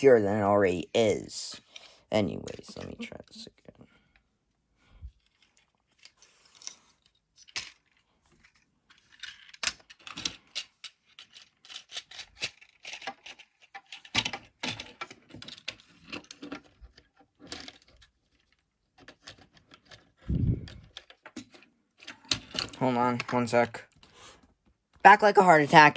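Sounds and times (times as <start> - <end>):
plastic toy parts clicking: 8.9 - 23.3.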